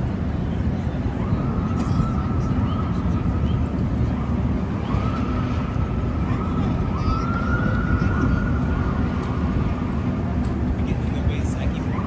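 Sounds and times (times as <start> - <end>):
low rumble of city traffic: 0.0 - 12.0
wind on the microphone: 0.0 - 12.0
distant emergency siren: 1.1 - 10.1.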